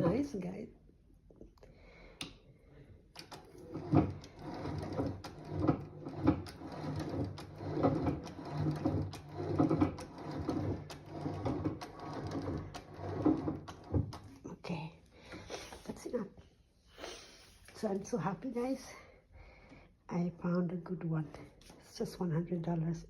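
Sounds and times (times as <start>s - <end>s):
sewing machine clattering: 3.2s - 14.4s.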